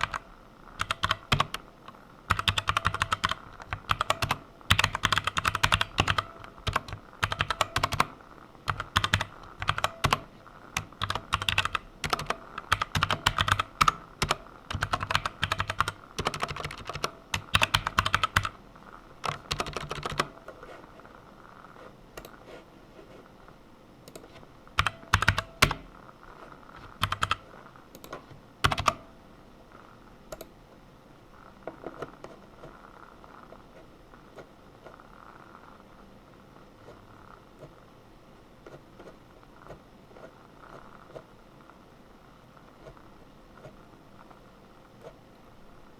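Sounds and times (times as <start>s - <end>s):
typing on computer keyboard: 0.0s - 1.6s, 2.3s - 18.6s, 19.2s - 20.4s, 24.1s - 25.9s, 26.8s - 29.1s.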